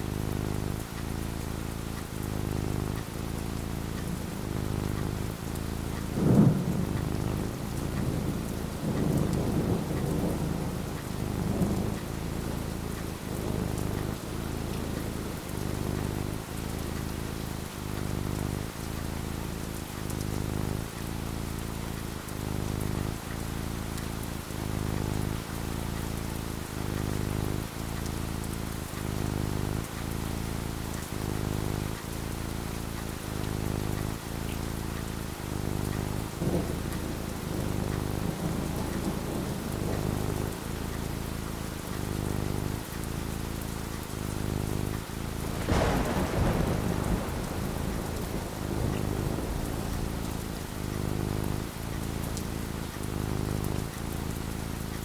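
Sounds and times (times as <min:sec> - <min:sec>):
rain falling: 0:00.0 - 0:55.0
low rolling thunder: 0:04.0 - 0:18.8, 0:35.2 - 0:43.7, 0:44.4 - 0:54.5
sharp thunderclap: 0:06.1 - 0:12.1, 0:36.2 - 0:40.6, 0:44.9 - 0:53.9.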